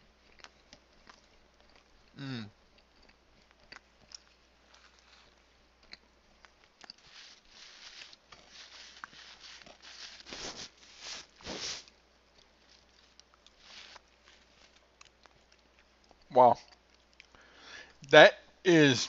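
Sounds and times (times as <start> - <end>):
person chewing with mouth clicks: 0.1 - 17.4
paper wrapper crinkling: 7.0 - 11.9.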